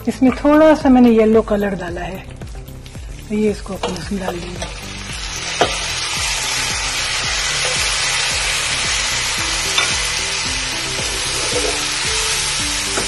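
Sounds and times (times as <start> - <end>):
vermicelli sizzling in ghee: 0.0 - 13.0.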